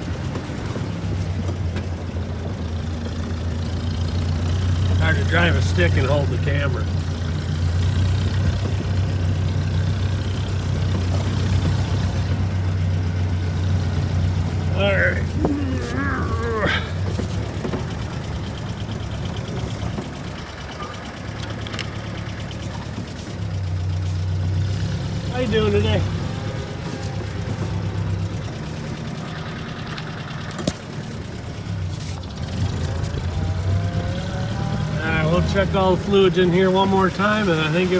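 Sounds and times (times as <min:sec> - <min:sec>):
car engine droning from inside: 0:00.0 - 0:37.9.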